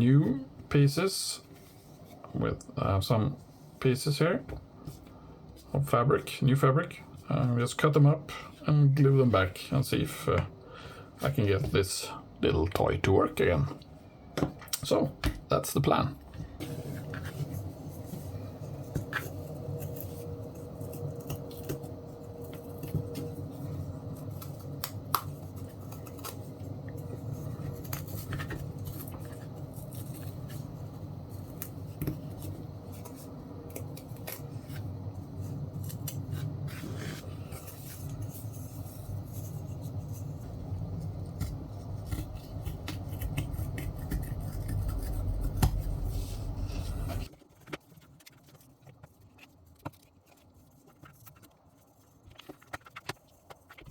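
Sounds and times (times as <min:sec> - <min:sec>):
low hum: 0:16.2 - 0:47.3.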